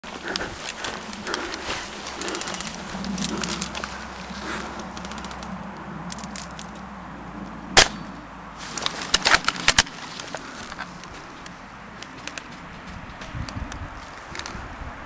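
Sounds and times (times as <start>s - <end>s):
airsoft gunfire cracks: 7.8s - 8.1s.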